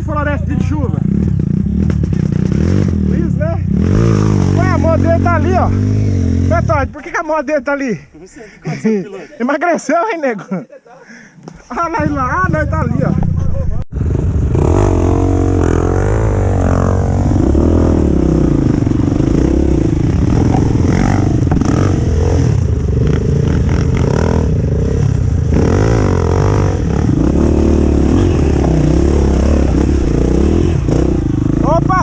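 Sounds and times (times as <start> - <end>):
motorcycle engine revving: 0.0 - 7.2, 14.0 - 32.0.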